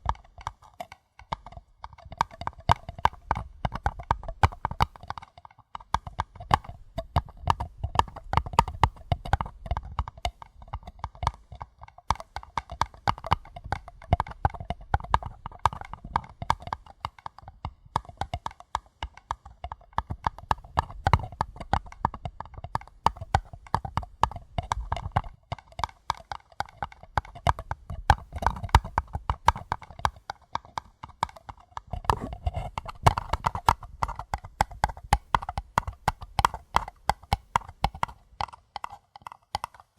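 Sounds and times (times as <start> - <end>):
fingers tapping on paper cups: 0.0 - 39.9.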